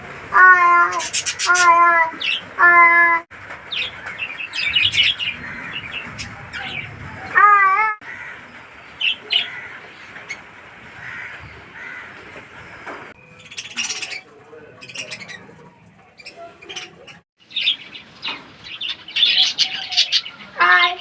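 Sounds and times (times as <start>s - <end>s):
budgerigars chirping: 13.3s - 15.6s.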